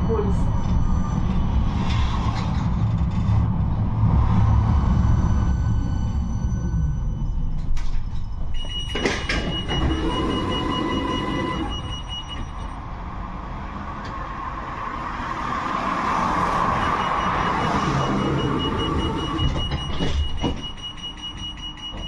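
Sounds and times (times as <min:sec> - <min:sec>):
high whining tones: 0:04.3 - 0:12.8
tram wheels rumbling on rail: 0:17.1 - 0:20.6.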